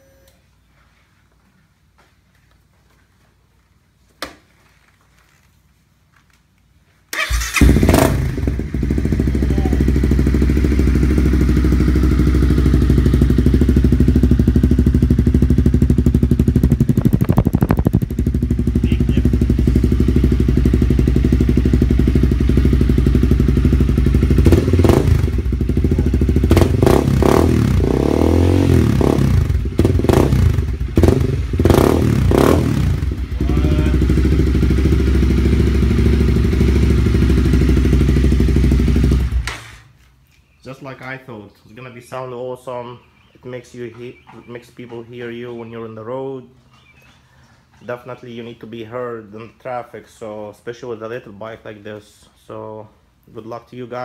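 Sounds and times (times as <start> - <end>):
motorcycle engine idling and revving: 7.2 - 39.8.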